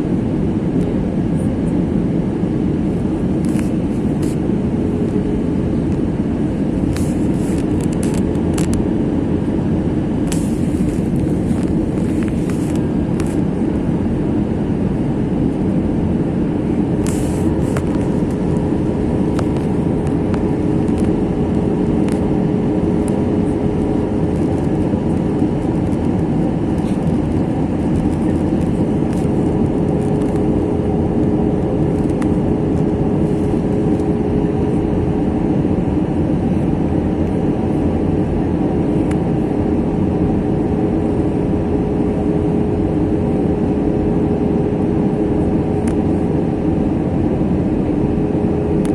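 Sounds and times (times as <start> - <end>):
aircraft cabin engine rumble: 0.0 - 48.9
steady hum: 0.0 - 48.9.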